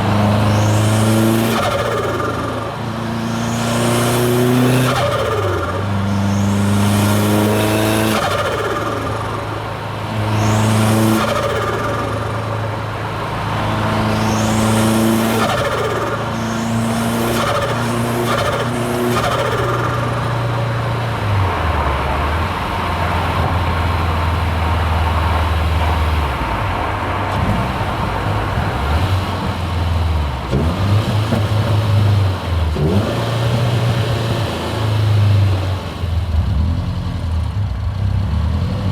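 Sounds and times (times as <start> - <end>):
turbo whine: 0.0 - 25.0
car engine revving: 0.0 - 38.9.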